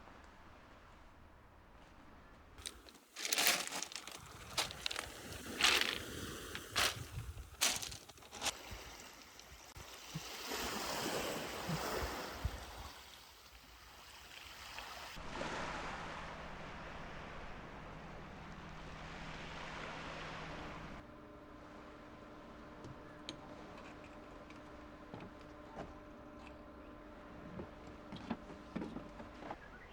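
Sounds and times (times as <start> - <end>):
rushing outdoor noise: 2.6 - 8.6.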